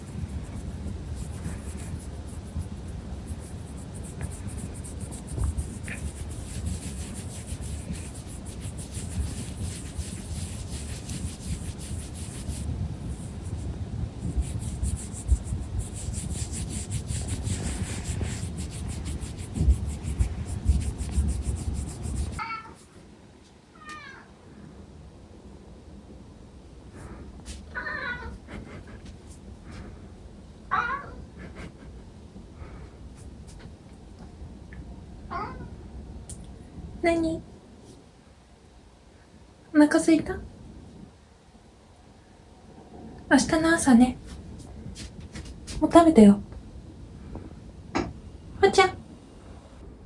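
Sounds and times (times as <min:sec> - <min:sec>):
rubbing and scraping: 0:00.0 - 0:22.9
cat meowing: 0:27.7 - 0:28.4, 0:30.7 - 0:31.2.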